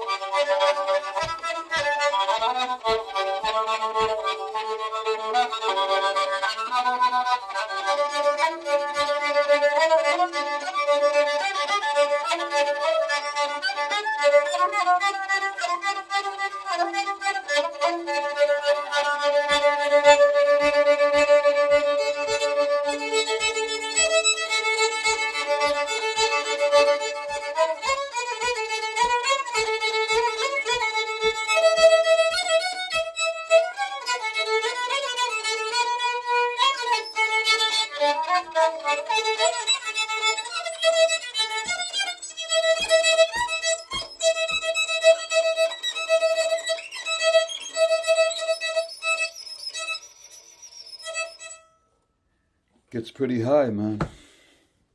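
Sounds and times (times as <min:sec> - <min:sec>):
fiddle played with bow: 0:00.0 - 0:52.0
soft regular knock: 0:42.8 - 0:44.8.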